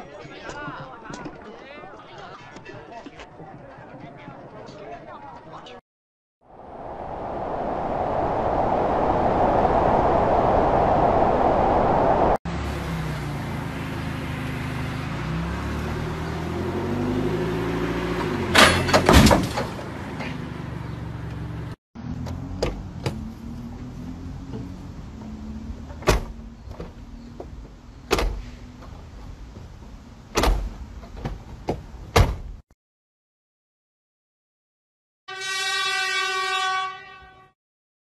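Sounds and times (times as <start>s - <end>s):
loud crash: 18.5s - 19.8s
droning with shifting pitch: 22.0s - 26.7s
truck door and handle clunking: 25.9s - 32.6s.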